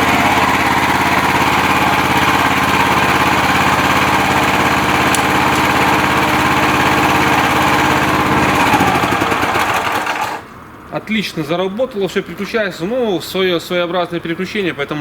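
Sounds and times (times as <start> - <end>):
small petrol engine running: 0.0 - 10.5.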